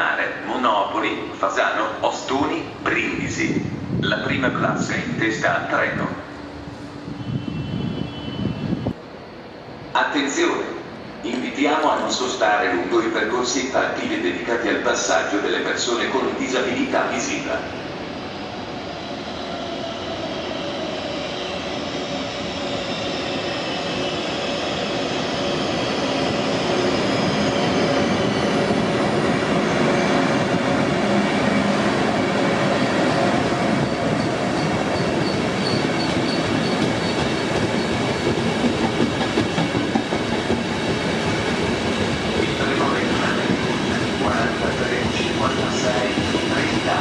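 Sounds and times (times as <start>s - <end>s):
train rumbling past: 0.0s - 47.0s
high wheel squeal: 7.1s - 8.9s, 33.1s - 38.3s.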